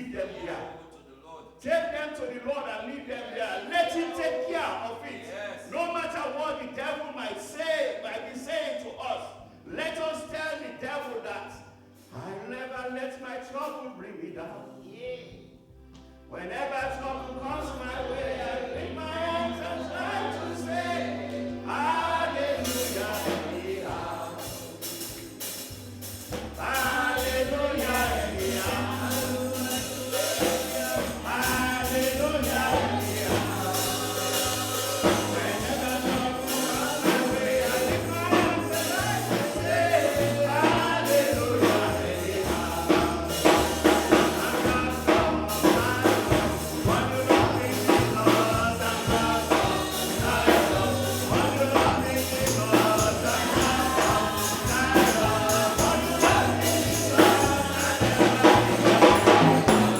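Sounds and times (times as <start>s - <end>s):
voices singing gospel song: 0.0s - 15.4s, 16.0s - 59.9s
steady tambourine beat: 19.4s - 59.9s
stepping bass line: 25.2s - 59.9s.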